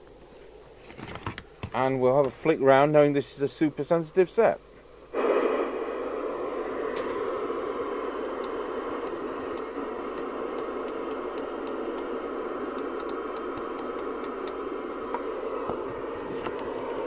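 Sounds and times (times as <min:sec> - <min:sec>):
radio receiver hissing: 0:05.1 - 0:17.0.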